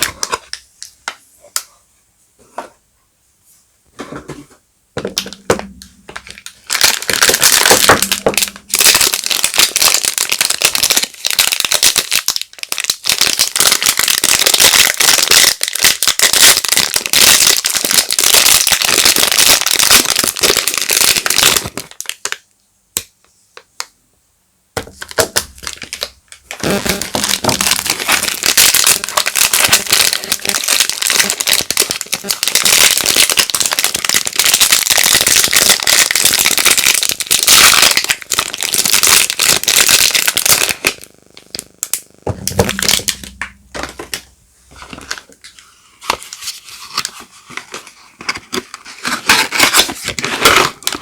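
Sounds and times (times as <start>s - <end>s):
wrapper crinkling: 5.2s - 22.4s, 25.0s - 51.0s.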